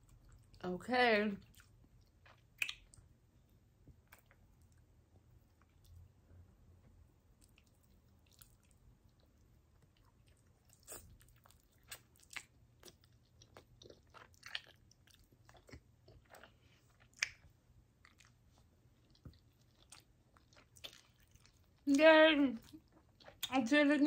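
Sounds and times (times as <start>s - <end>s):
mouth clicks and smacks: 1.6s - 3.1s, 17.0s - 17.5s
chewing and biting: 7.4s - 21.8s.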